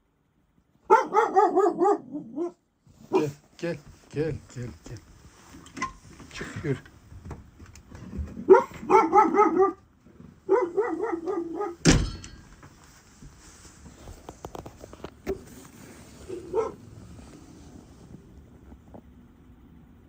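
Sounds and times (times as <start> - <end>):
dog barking: 0.8 - 3.4, 8.4 - 9.9, 10.5 - 11.8, 16.2 - 16.9
sharp thump: 11.8 - 12.4.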